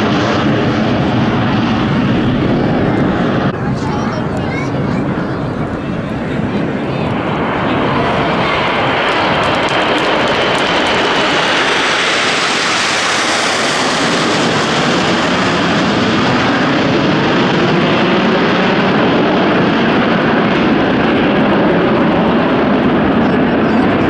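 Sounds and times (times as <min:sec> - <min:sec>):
jets flying past: 0:00.0 - 0:19.8.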